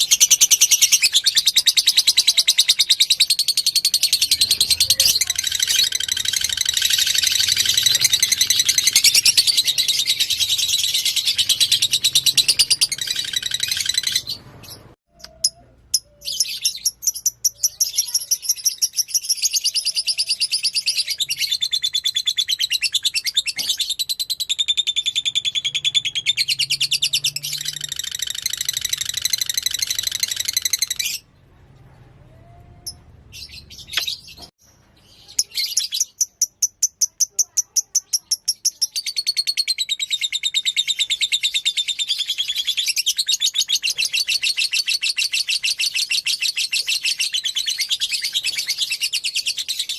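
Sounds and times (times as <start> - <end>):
lovebird chattering trill: 0.0 - 31.2.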